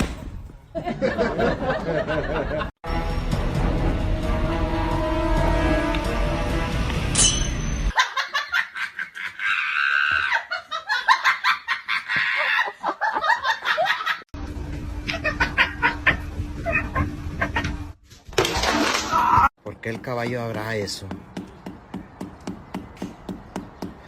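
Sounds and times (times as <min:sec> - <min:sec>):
music: 0:02.8 - 0:07.6
person laughing: 0:08.0 - 0:14.2, 0:15.0 - 0:17.8.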